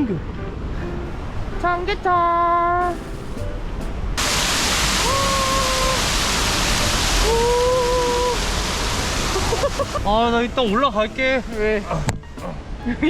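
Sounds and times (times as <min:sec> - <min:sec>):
stream water rushing: 0:04.1 - 0:12.8.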